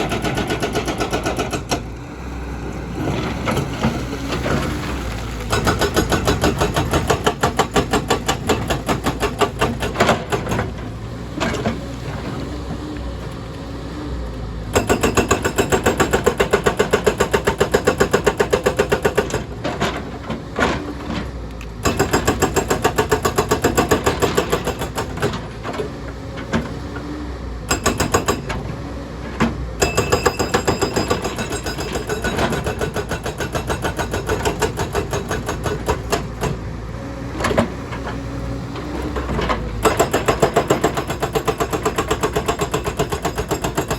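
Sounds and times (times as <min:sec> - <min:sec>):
hydraulic breaker hammering rock: 0:00.0 - 0:01.9, 0:05.5 - 0:10.8, 0:14.7 - 0:20.8, 0:21.8 - 0:25.7, 0:27.7 - 0:28.8, 0:29.8 - 0:36.6, 0:39.0 - 0:43.9.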